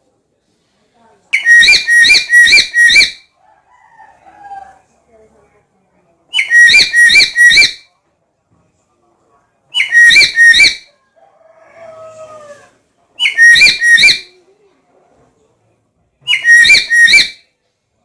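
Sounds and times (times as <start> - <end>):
parrot whistled calls: 1.3 - 3.3, 6.4 - 7.8, 9.8 - 10.9, 13.2 - 14.3, 16.3 - 17.4.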